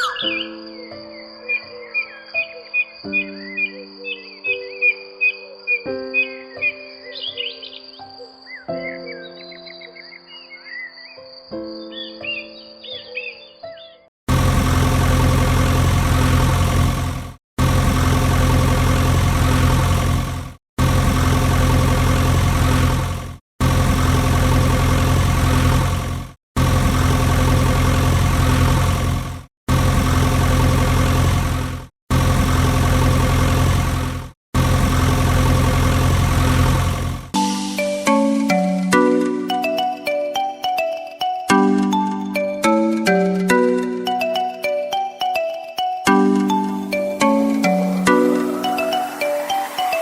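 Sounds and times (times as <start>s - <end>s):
tractor engine idling: 14.3s - 37.4s.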